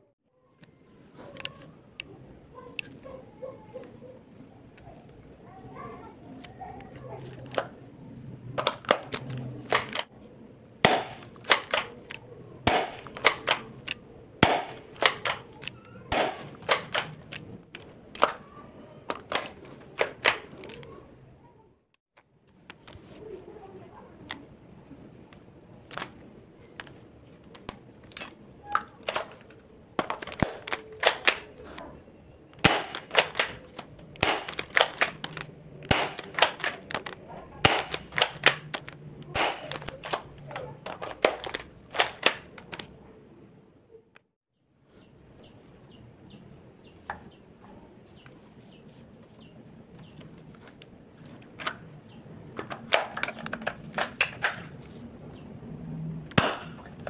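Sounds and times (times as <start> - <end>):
airsoft guns clicking and snapping: 1.2 - 2.1, 6.4 - 7.8, 8.5 - 10.1, 10.8 - 18.5, 19.1 - 20.9, 25.3 - 31.8, 32.5 - 42.9, 52.6 - 54.8.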